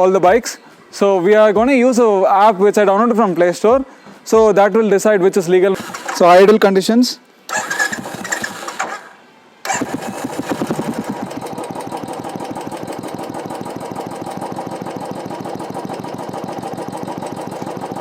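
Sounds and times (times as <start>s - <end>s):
motorcycle engine idling: 5.8s - 6.4s, 9.7s - 18.0s.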